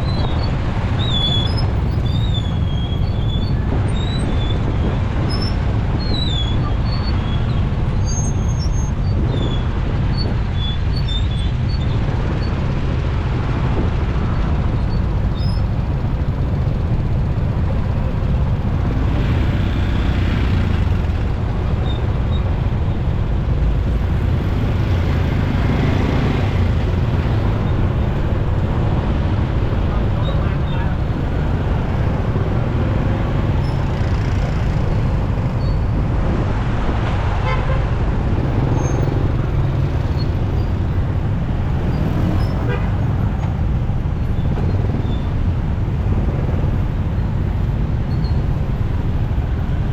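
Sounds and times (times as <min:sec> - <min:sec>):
passing traffic: 0:00.0 - 0:49.9
wind on microphone: 0:00.0 - 0:49.9
motorcycle engine rumble: 0:12.1 - 0:49.9.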